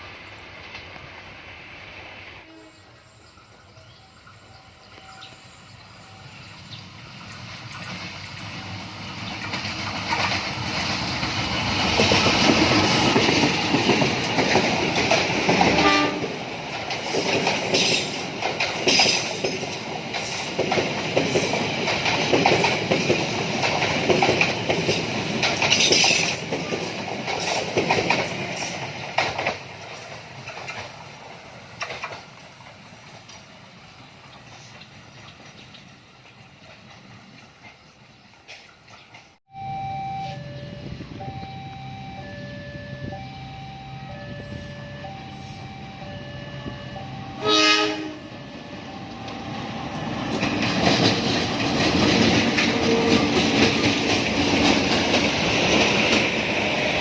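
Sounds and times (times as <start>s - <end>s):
train rumble and wheel clatter: 0.0s - 57.0s
train horn note: 2.4s - 3.0s, 15.6s - 16.4s, 42.1s - 50.0s.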